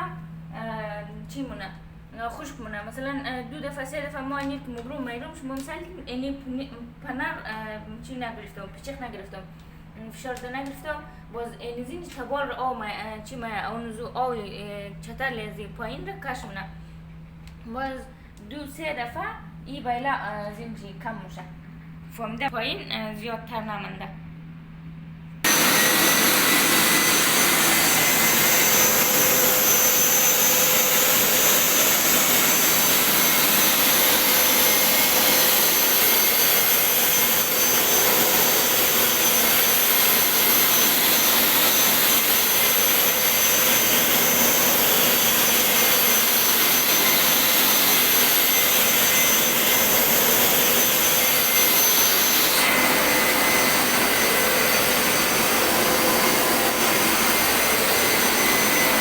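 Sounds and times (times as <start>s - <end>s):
suction motor whine: 25.4s - 59.0s.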